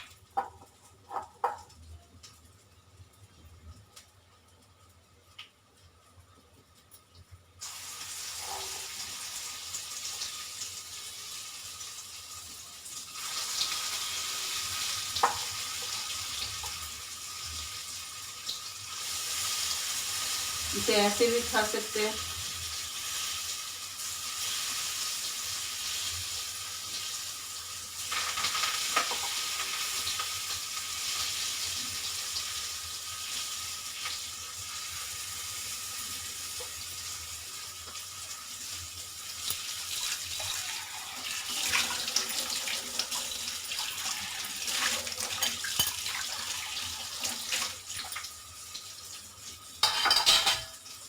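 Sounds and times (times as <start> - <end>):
oil sizzling in a pan: 0.0 - 51.0
utensil clinking on pan: 49.8 - 50.8.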